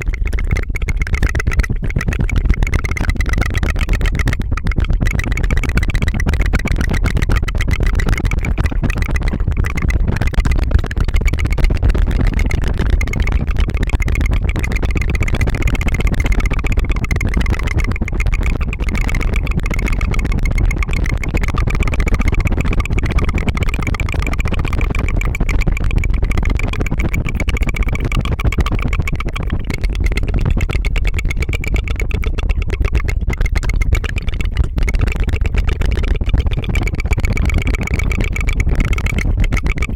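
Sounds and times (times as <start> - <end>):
tongue trilling rattle: 0.0 - 39.9.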